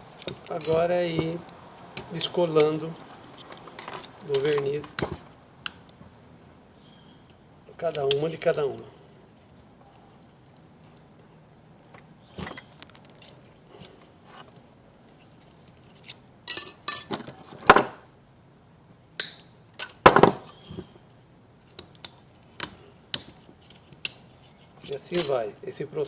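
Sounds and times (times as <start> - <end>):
metallic clinks: 0.0 - 1.4, 2.0 - 5.4, 25.1 - 25.5.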